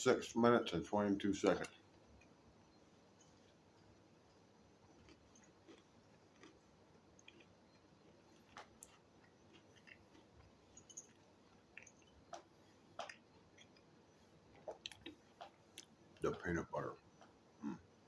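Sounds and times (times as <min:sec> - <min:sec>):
faint chewing: 0:03.1 - 0:16.4.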